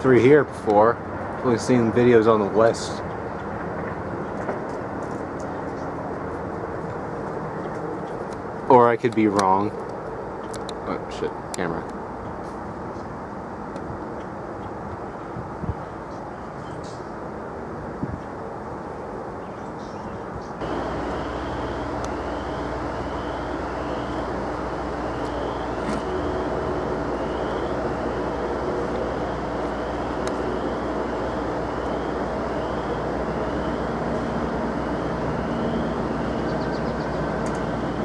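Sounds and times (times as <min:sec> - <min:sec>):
diesel locomotive engine rumbling: 0:00.0 - 0:16.6, 0:20.6 - 0:38.0
locomotive bell ringing: 0:20.6 - 0:38.0.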